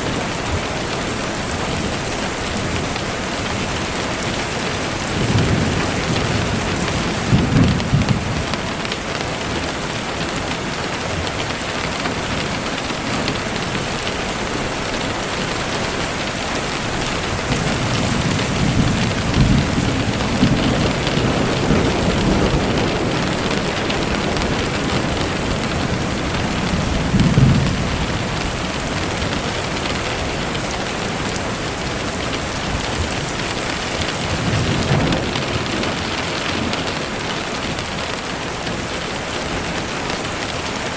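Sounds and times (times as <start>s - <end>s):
steady rain falling: 0.0s - 40.9s
thunder rolling: 5.1s - 8.8s, 16.9s - 38.3s.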